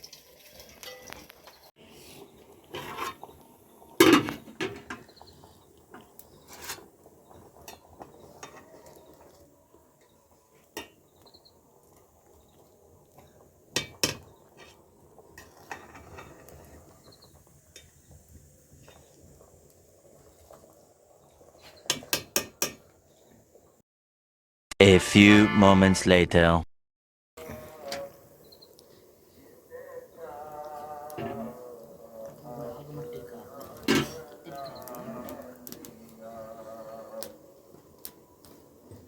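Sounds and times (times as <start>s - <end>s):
dishes and utensils clattering: 0.0s - 1.6s, 33.8s - 34.2s.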